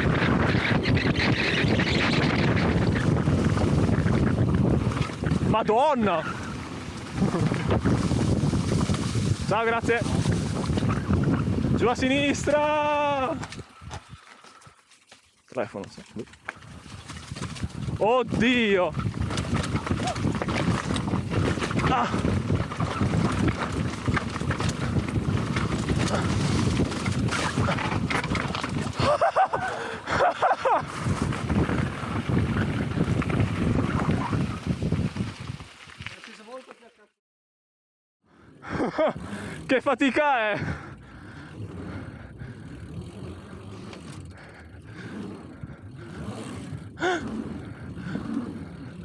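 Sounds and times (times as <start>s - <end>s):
wind on microphone: 0.0s - 5.6s, 6.3s - 14.2s, 16.1s - 30.0s, 30.8s - 36.1s
mountain bike rattling on rough trail: 0.0s - 37.0s, 38.6s - 49.0s.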